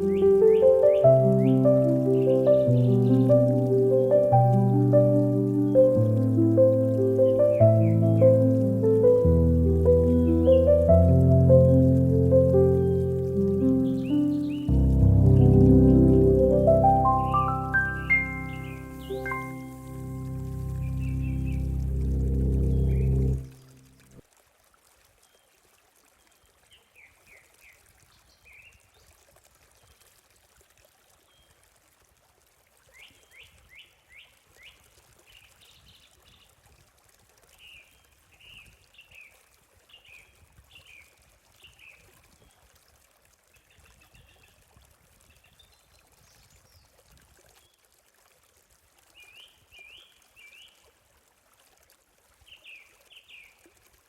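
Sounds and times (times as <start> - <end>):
small birds chirping: 0.0 - 23.4
water trickling: 0.0 - 54.0.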